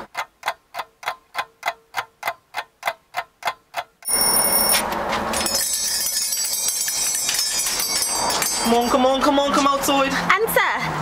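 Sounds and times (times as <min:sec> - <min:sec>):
clock ticking: 0:00.0 - 0:04.8
bells ringing: 0:04.0 - 0:09.6.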